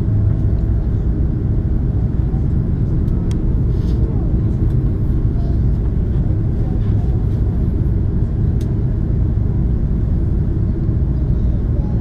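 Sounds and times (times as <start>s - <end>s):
airliner cabin rumble while taxiing: 0.0s - 12.0s.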